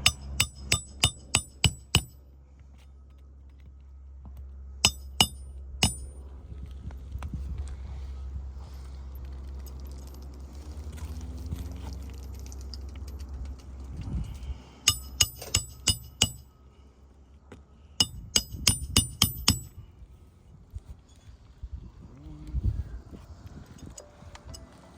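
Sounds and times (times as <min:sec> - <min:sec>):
hammer blows with metallic ring: 0:00.0 - 0:02.2, 0:04.8 - 0:06.2, 0:14.2 - 0:16.6, 0:18.0 - 0:19.9
low steady rumble: 0:00.0 - 0:24.9.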